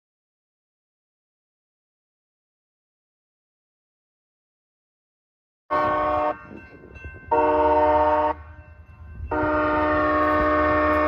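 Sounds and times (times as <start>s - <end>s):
train horn blasts: 5.7s - 6.7s, 7.3s - 8.6s, 9.2s - 11.0s.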